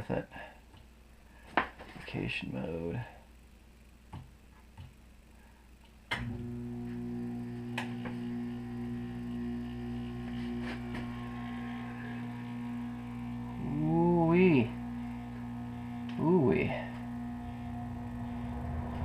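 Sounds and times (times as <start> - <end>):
heat pump humming: 5.8 - 19.0.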